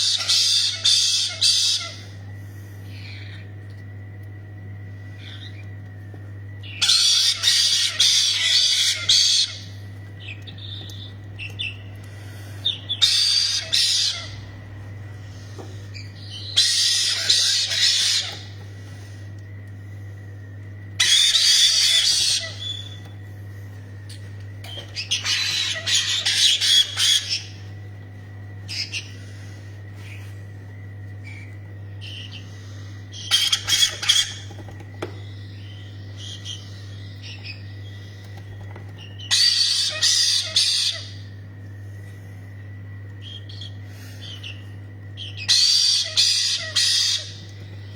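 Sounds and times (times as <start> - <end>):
parrots screeching: 0.0 - 2.2, 6.6 - 9.8, 12.6 - 14.6, 15.9 - 18.6, 21.0 - 23.1, 24.7 - 27.7, 28.7 - 29.2, 31.2 - 34.8, 39.0 - 41.4, 45.2 - 47.9
steady low hum: 0.0 - 47.9.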